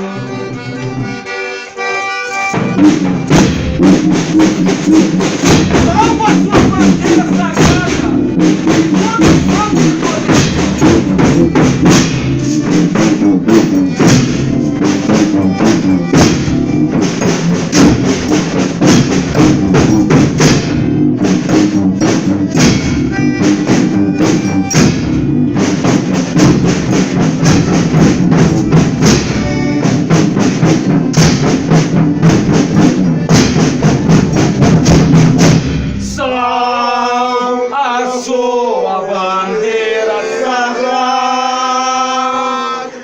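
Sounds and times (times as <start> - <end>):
drum and tambourine beat: 2.3 - 36.4.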